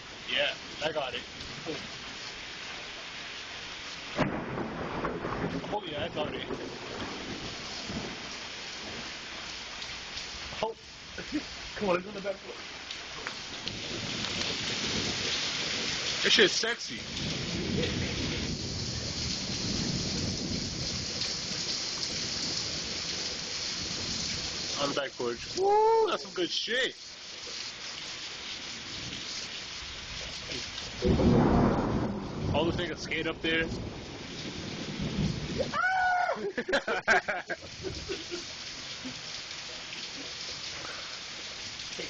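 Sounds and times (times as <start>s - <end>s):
heavy rain downpour: 0.0s - 42.0s
low rumble of thunder: 4.1s - 9.2s, 13.6s - 24.8s, 28.8s - 36.2s
person calling out: 25.5s - 26.4s, 35.6s - 36.5s.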